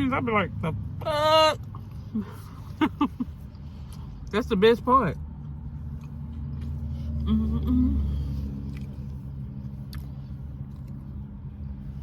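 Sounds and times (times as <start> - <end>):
car engine idling: 0.0 - 12.0
person humming: 7.2 - 8.2.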